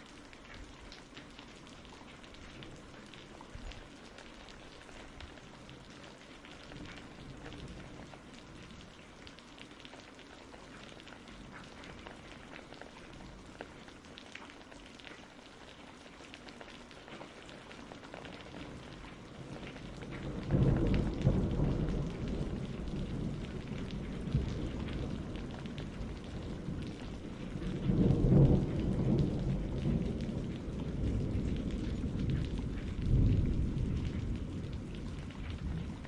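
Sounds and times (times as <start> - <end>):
steady rain: 0.0 - 36.0
thunder rumbling: 18.4 - 36.0.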